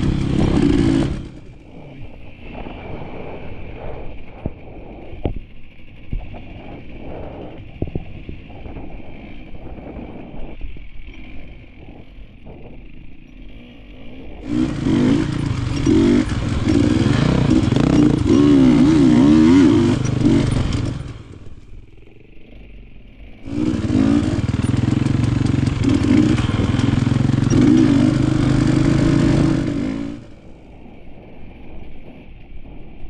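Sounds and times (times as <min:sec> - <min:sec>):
motorcycle engine revving: 0:00.0 - 0:04.0, 0:11.1 - 0:32.3.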